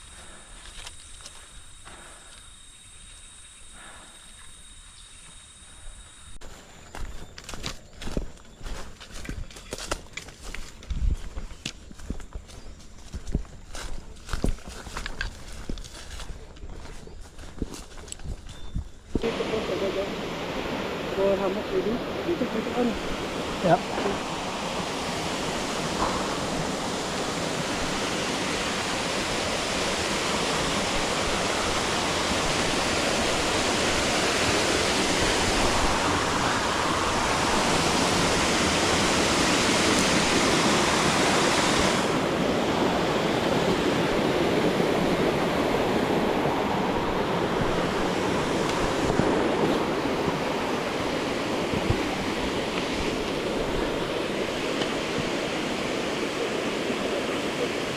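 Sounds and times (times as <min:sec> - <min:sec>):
waterfall roaring: 0:19.2 - 0:57.9.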